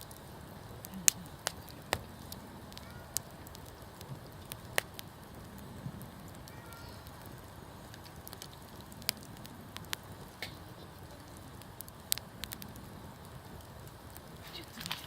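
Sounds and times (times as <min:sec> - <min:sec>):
campfire crackling and popping: 0:00.0 - 0:15.0
low rumble of flames: 0:00.0 - 0:15.0.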